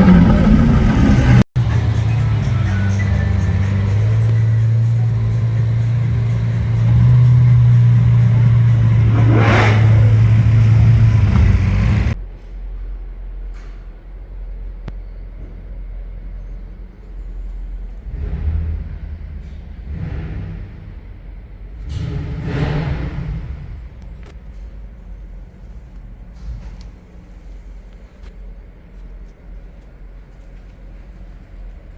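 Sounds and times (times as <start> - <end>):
sports car engine revving: 0.0 - 12.2, 18.0 - 24.0.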